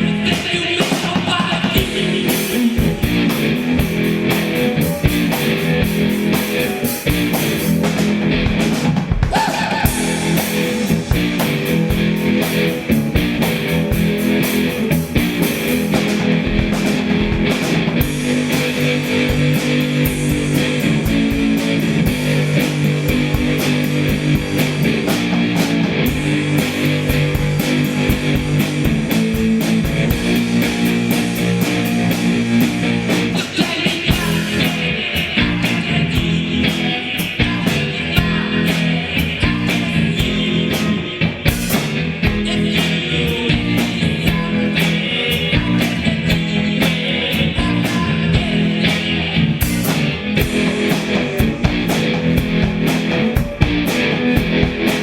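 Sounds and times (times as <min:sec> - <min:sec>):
rock music with guitars and drums: 0:00.0 - 0:55.0.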